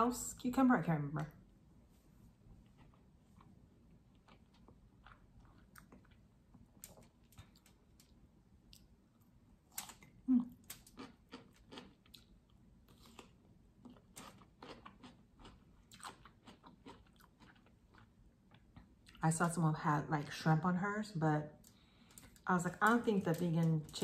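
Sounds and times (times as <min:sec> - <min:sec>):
person chewing and crunching food: 0:02.3 - 0:19.2.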